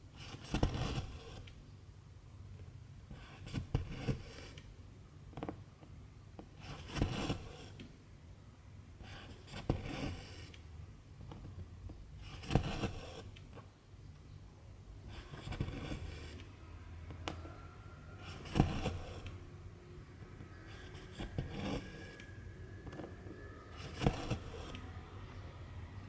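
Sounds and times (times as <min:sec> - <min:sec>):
thread rasping through fabric: 0:12.2 - 0:13.6, 0:15.0 - 0:19.5, 0:20.5 - 0:25.0.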